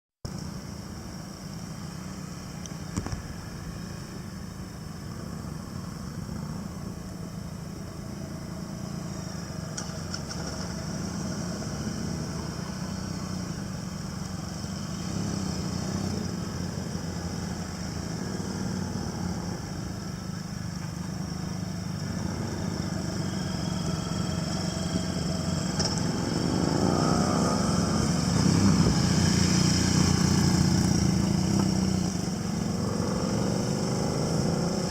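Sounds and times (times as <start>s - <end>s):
motorcycle engine running: 0.6s - 34.9s.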